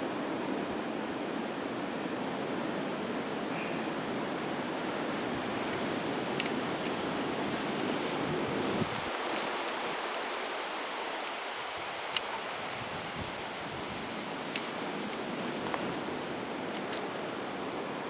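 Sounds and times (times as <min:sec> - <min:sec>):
strong wind through trees: 0:00.0 - 0:18.0
wind buffeting microphone: 0:05.3 - 0:10.1
faint clicks: 0:06.3 - 0:07.0.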